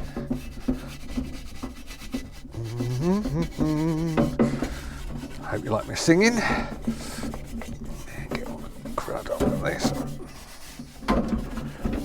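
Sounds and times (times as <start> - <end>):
brush scrubbing metal case: 0.0 - 12.0
man singing: 2.6 - 4.6.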